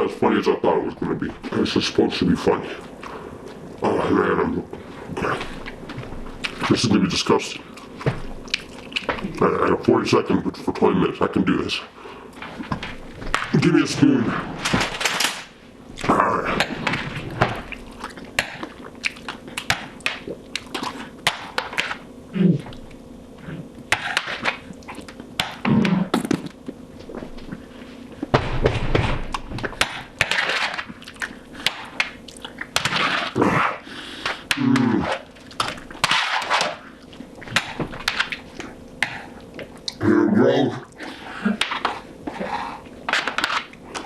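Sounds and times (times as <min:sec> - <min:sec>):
chewing: 0:07.7 - 0:09.4, 0:17.7 - 0:22.0, 0:30.9 - 0:32.8.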